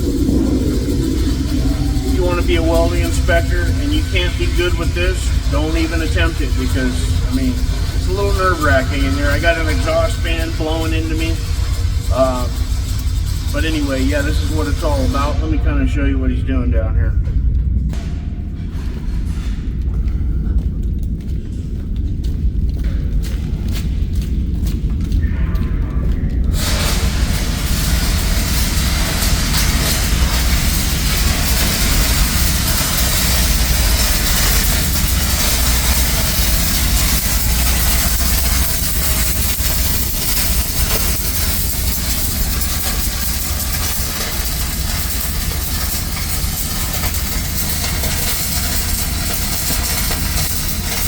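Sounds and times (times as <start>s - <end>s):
exhaust fan blowing air: 0.0s - 51.0s
welder at work: 0.0s - 51.0s.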